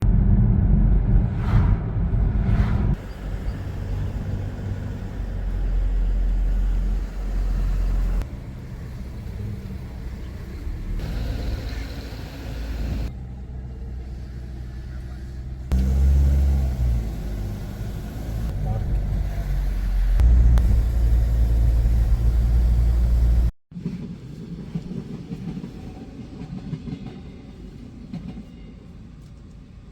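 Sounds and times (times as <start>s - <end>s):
car driving on road: 0.0s - 23.5s.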